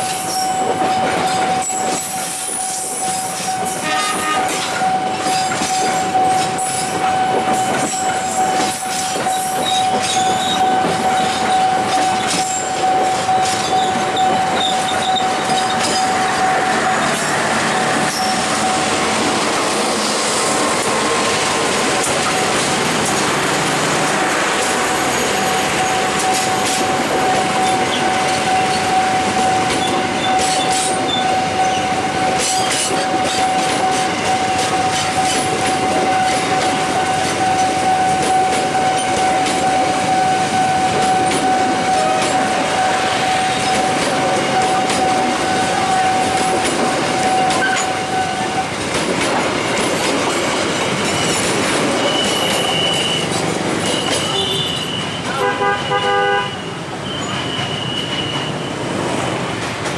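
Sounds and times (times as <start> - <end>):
train wheels rumbling on rail: 0.0 - 59.9
high-pitched wheel squeal: 0.1 - 19.0, 27.3 - 48.7, 51.0 - 55.4, 56.5 - 58.8
train horn toots: 1.3 - 19.1, 25.1 - 48.8, 52.0 - 58.6.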